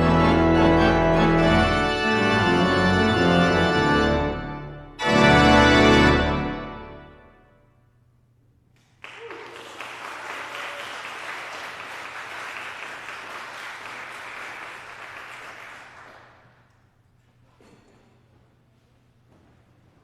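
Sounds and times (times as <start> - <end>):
congregation applauding: 8.8 - 16.8.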